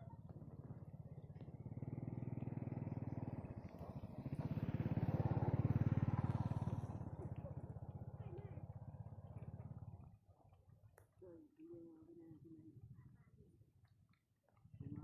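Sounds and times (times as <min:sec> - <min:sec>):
small engine running: 0:00.0 - 0:11.4.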